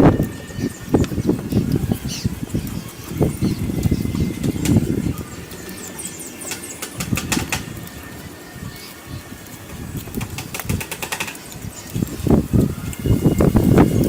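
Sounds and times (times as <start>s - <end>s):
sharp clicks: 6.3s - 8.0s, 10.0s - 12.0s.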